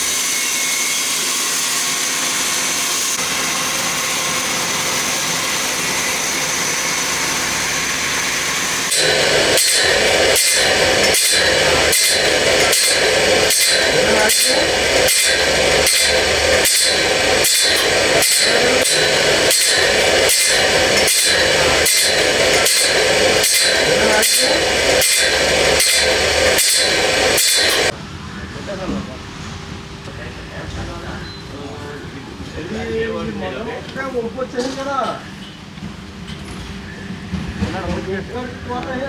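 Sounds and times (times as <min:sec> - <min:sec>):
sawmill machinery whine: 0:00.0 - 0:28.0
sawmill repeating stroke: 0:00.0 - 0:28.0.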